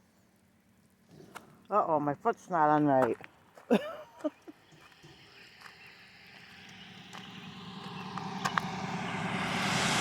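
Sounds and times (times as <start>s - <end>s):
road vehicle approaching: 4.4s - 10.0s.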